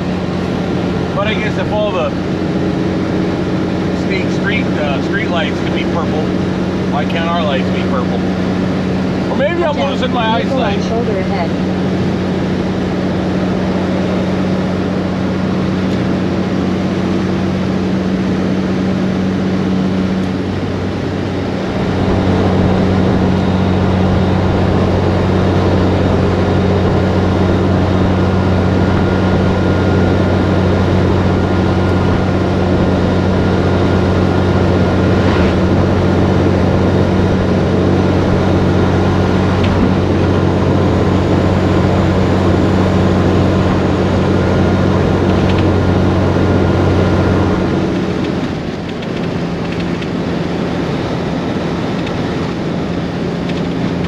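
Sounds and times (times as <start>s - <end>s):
diesel truck engine drone: 0.0s - 54.0s.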